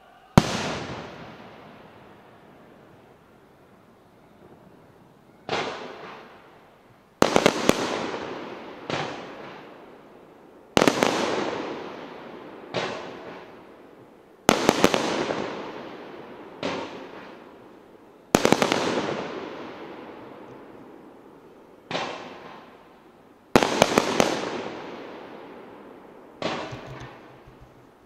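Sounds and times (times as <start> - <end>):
firework shells bursting: 26.4 - 28.0.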